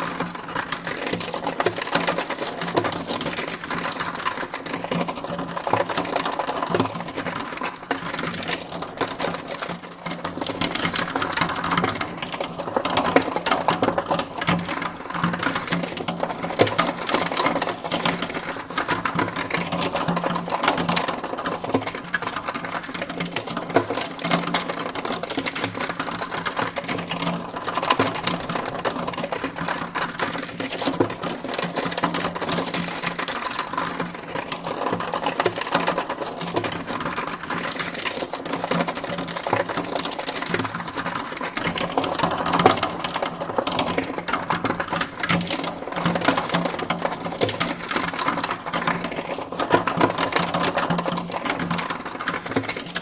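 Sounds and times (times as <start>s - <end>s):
rapid mechanical clattering: 23.6s - 53.0s.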